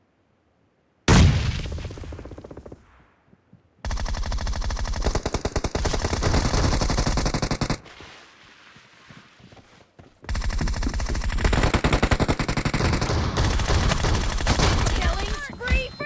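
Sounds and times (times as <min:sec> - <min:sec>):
video game automatic gunfire: 0:03.8 - 0:07.8, 0:10.3 - 0:15.9.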